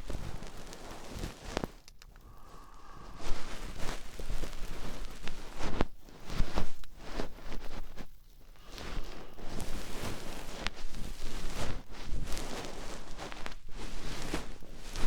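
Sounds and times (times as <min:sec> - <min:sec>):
scratchy rustling ear-cleaning strokes: 0:00.0 - 0:15.0
small clicks: 0:01.5 - 0:02.3.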